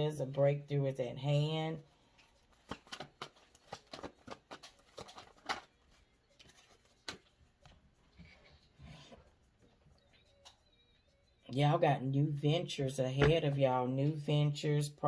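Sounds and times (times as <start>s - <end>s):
cards clicking and tapping: 2.5s - 5.7s, 6.4s - 7.4s.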